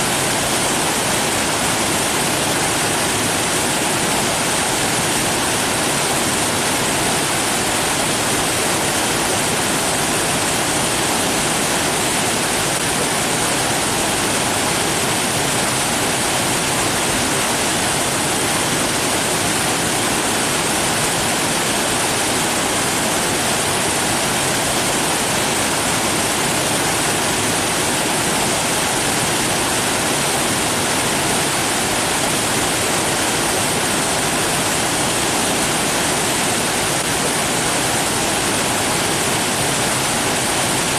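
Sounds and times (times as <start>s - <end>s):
rushing water: 0.0s - 40.9s.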